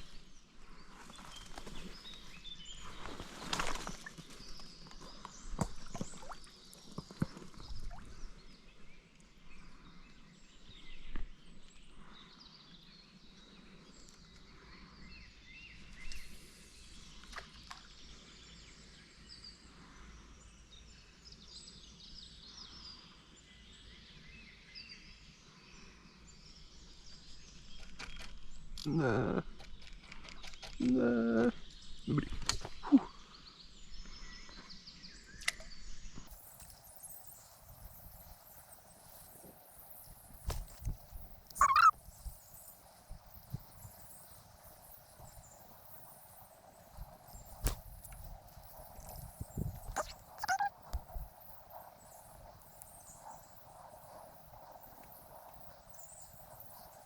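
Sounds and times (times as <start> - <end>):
birds chirping: 28.9 - 57.0.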